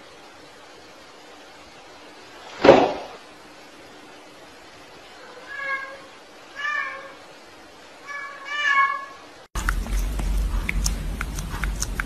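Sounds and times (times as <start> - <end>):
cat meowing: 5.2 - 7.2, 8.0 - 9.2
noisy background: 9.6 - 12.0
scattered clicks and ticks: 9.6 - 12.0.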